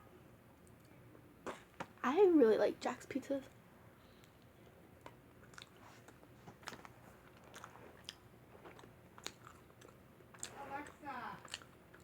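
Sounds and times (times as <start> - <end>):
faint crunchy chewing: 4.2 - 12.0.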